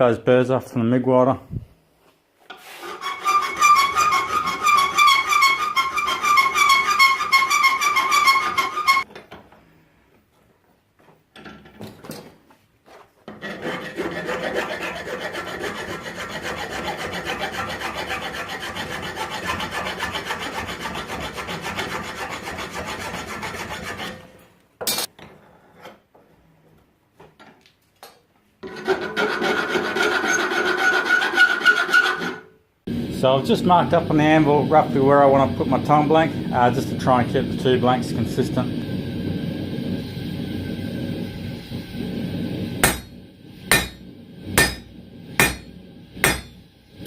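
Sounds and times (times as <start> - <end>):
abrasive rasping on metal: 2.5 - 9.0, 13.3 - 24.3, 28.6 - 32.5, 42.8 - 43.1, 43.7 - 44.0, 44.6 - 46.6.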